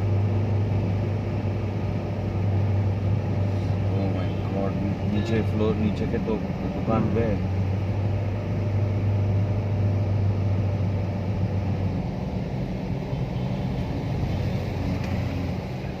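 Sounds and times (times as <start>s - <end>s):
road noise: 0.0s - 16.0s
vehicle engine humming: 0.0s - 16.0s.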